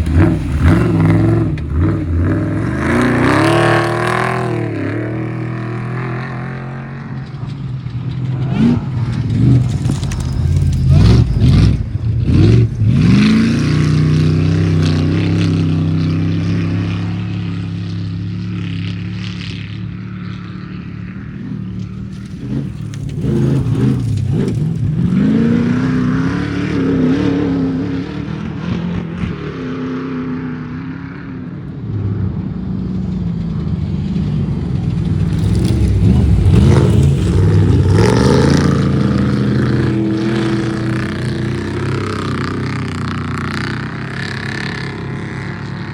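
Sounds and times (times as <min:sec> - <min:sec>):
race vehicle engines revving: 0:00.0 - 0:45.9.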